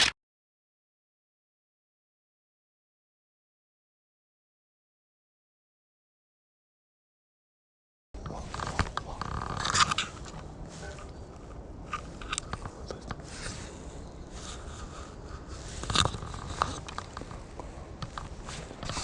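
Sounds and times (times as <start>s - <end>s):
footsteps crunching on a path: 8.2s - 19.0s.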